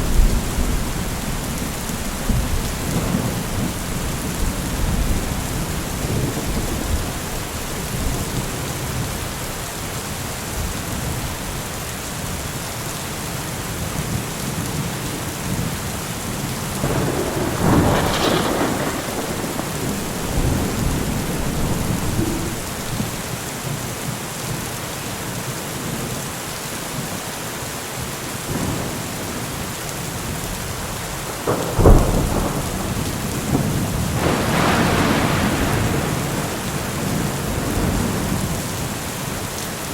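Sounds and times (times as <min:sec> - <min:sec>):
thunder rumbling: 0:00.0 - 0:09.6, 0:16.7 - 0:23.7, 0:30.2 - 0:39.0
heavy rain: 0:00.0 - 0:39.9
sharp thunder clap: 0:16.8 - 0:23.2, 0:31.5 - 0:38.6.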